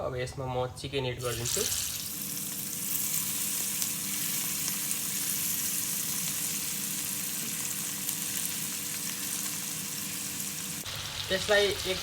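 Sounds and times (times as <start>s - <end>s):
chicken frying in hot oil: 1.2s - 12.0s.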